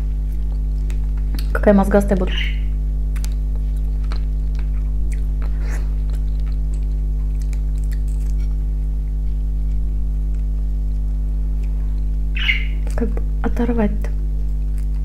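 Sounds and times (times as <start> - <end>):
low electrical hum: 0.0 - 15.0
wet mouth clicks and smacks: 3.1 - 3.4, 4.0 - 8.5
person chewing: 3.1 - 12.2, 14.4 - 15.0.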